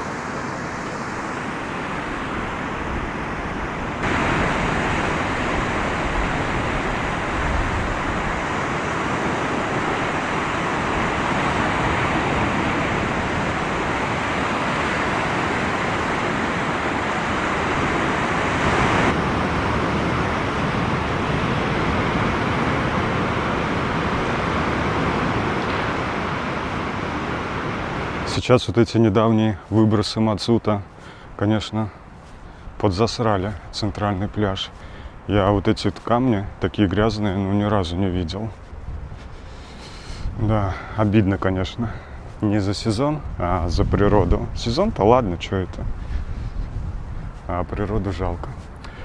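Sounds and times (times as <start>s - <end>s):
rough sea surf on shore: 0.0s - 49.0s.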